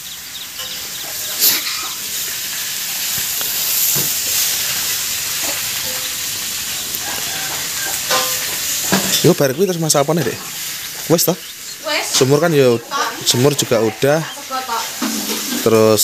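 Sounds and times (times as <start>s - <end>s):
vegetables sizzling in a wok: 0.0s - 16.0s.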